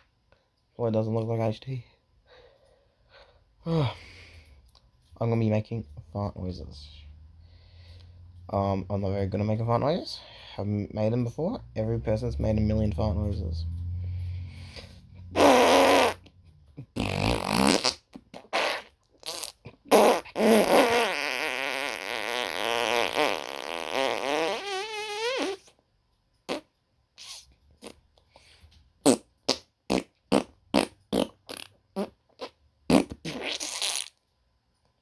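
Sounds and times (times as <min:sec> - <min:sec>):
person making fart noises: 0:15.3 - 0:25.7, 0:26.5 - 0:28.1, 0:29.0 - 0:34.2.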